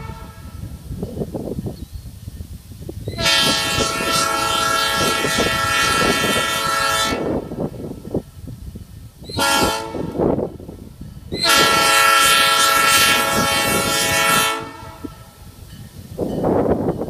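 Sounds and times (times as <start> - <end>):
locomotive air horn blasts: 0.0 - 0.8, 3.1 - 7.9, 9.3 - 10.5, 11.4 - 15.5
rumble of passing train: 0.0 - 17.0.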